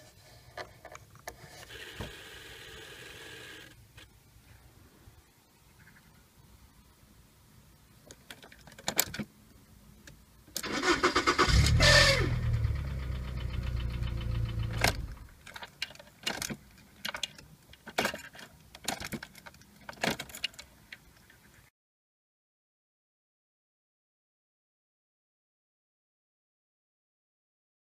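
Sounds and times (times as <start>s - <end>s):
car engine starting and running: 10.6s - 15.4s.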